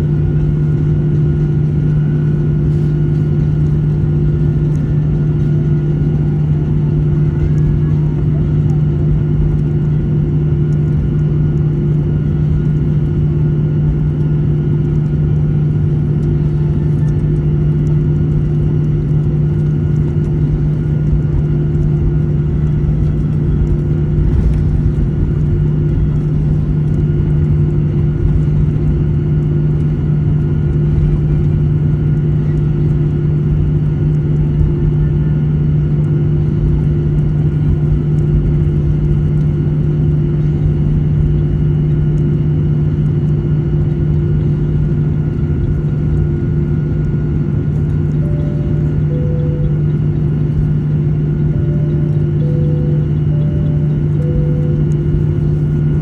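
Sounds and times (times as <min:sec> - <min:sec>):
jet engine cabin drone: 0:00.0 - 0:56.0.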